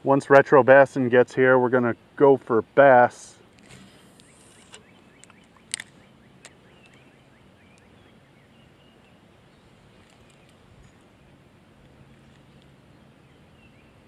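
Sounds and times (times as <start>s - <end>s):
faint bird chirps: 4.0s - 14.0s.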